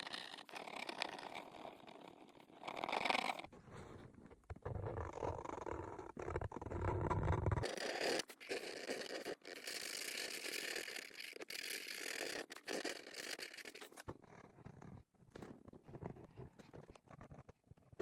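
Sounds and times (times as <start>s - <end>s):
colouring strokes scratching on paper: 7.3s - 14.1s.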